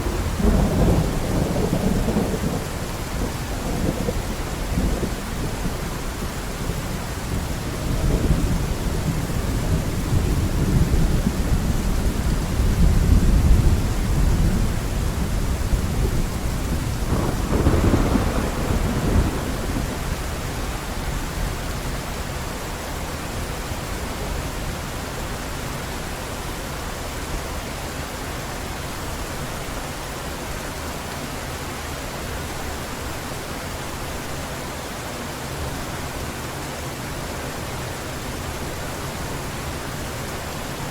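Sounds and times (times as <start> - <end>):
rumble of thunder: 0.0 - 21.2
heavy rain falling: 0.0 - 40.9.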